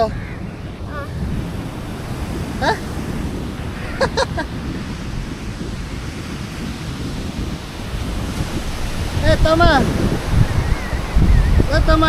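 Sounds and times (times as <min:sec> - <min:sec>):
voices calling out: 0:00.0 - 0:05.1
sea waves surging: 0:00.0 - 0:12.0
wind buffeting microphone: 0:00.0 - 0:12.0.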